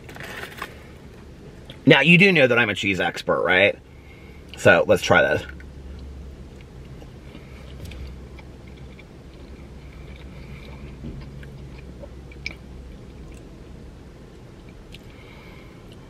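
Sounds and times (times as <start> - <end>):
low steady hum: 0.0 - 16.0
man chewing: 5.5 - 16.0.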